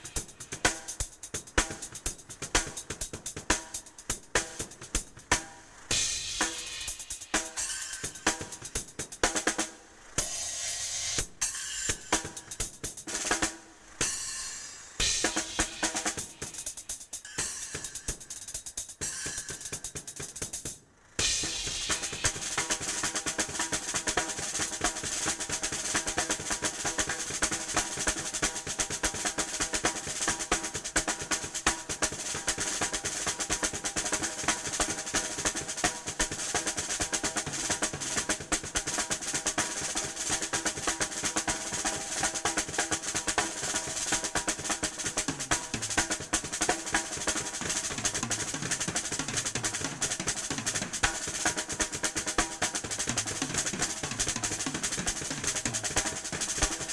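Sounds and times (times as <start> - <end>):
snare and tom rolls: 0.0 - 56.9.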